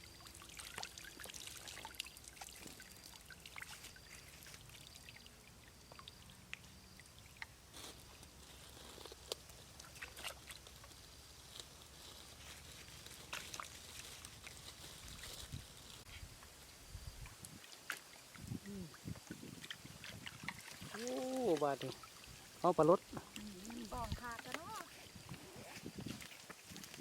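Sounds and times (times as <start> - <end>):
water trickling and pouring: 0.0 - 9.0, 17.1 - 27.0
small splashes and clicks: 0.1 - 15.5, 17.2 - 27.0.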